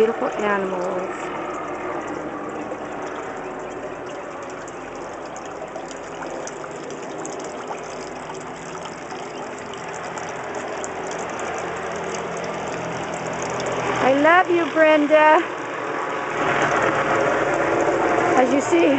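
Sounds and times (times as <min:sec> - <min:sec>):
fountain water splashing: 0:00.0 - 0:18.9
low hum: 0:00.0 - 0:18.9.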